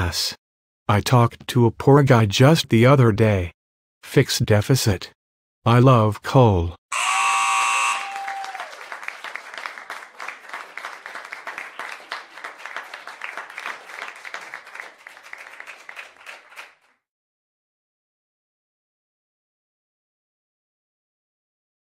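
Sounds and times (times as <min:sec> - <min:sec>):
audience applause: 0:07.0 - 0:16.9.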